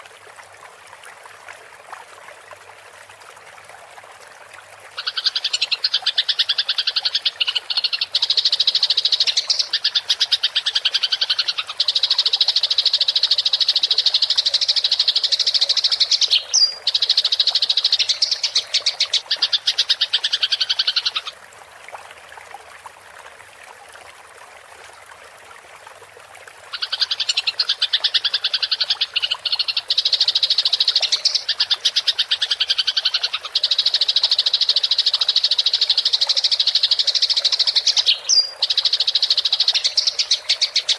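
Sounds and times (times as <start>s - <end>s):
faint running water: 0.0s - 40.9s.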